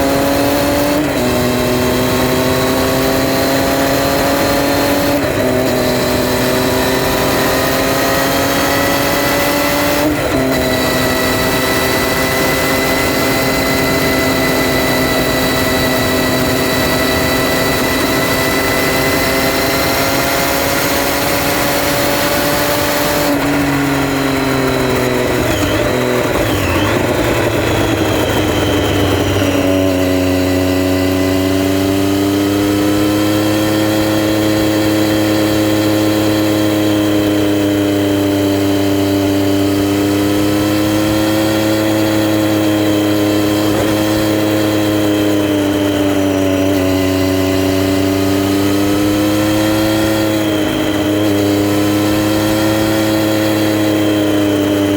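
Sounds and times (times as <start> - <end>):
wind noise: 0.0 - 36.4
gear change: 0.0 - 54.9
motorcycle engine running: 0.0 - 54.9.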